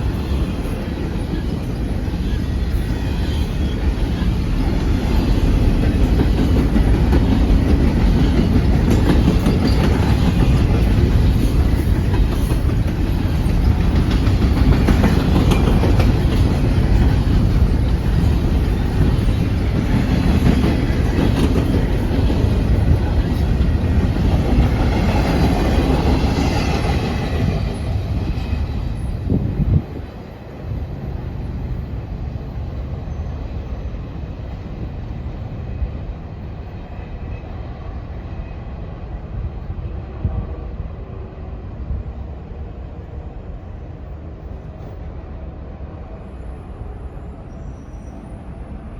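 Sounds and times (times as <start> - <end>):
train wheels clacking on rails: 0.0 - 30.2
faint wheel squeal: 47.1 - 48.6.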